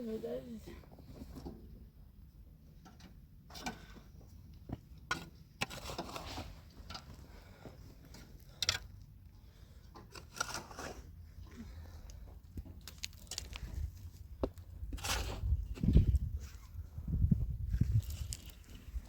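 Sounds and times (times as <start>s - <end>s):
steady low rumble: 11.2s - 19.0s.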